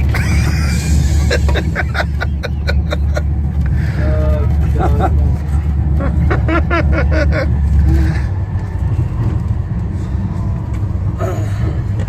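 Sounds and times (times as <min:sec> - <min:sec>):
electric train rumbling at speed: 0:00.0 - 0:12.0.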